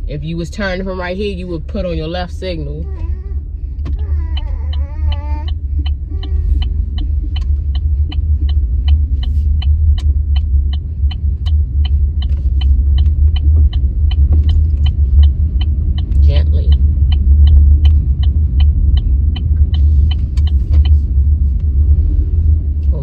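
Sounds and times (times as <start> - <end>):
car engine rumble: 0.0 - 23.0
car turn signal clicking: 3.8 - 21.8.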